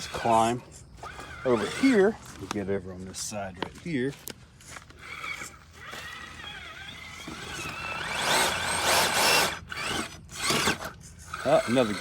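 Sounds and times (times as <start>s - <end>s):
electric motor whine: 0.0s - 2.1s, 4.8s - 12.0s.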